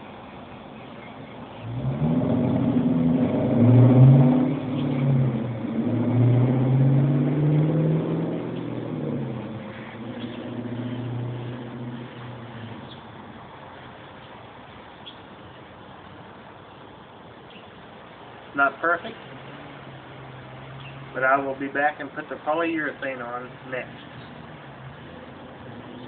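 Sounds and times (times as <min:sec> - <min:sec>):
engine changing speed: 0:01.6 - 0:13.6, 0:18.9 - 0:22.4.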